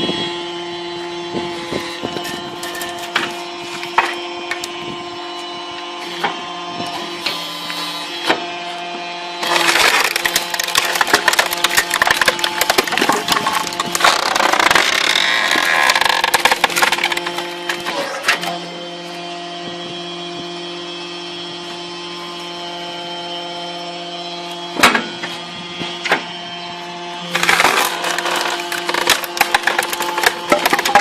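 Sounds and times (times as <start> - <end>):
machine humming: 0.0 - 31.0
wood cracking and splintering: 9.4 - 18.5, 27.3 - 31.0.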